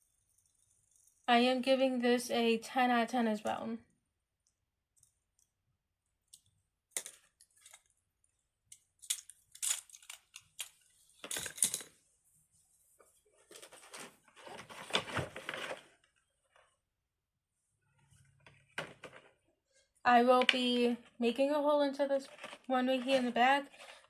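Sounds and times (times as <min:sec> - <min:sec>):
plastic packaging rustling: 0:13.4 - 0:16.6, 0:22.2 - 0:24.0.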